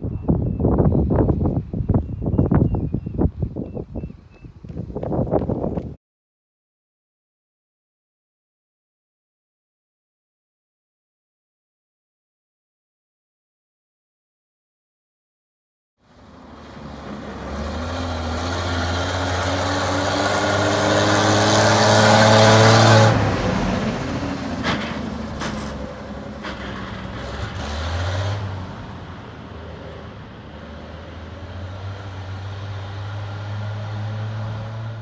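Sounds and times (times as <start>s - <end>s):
vehicle engine accelerating: 16.1s - 35.0s.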